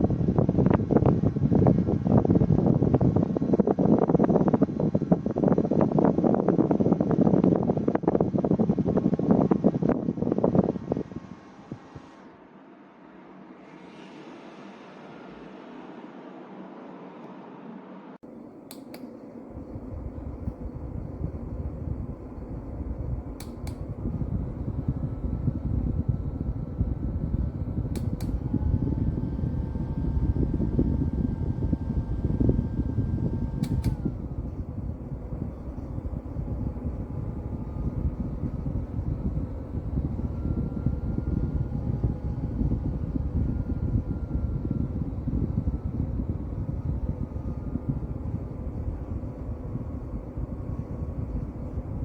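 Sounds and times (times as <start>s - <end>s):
desk fan running: 0.0s - 13.5s, 18.2s - 52.0s
fan switch double clicks: 18.7s - 19.2s, 23.3s - 24.2s, 27.8s - 28.6s, 33.5s - 34.5s.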